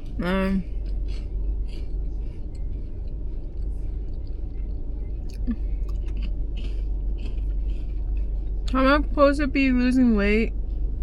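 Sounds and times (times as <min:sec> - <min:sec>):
person chewing crunchy food: 0:00.0 - 0:08.8
steady low rumble: 0:00.0 - 0:11.0.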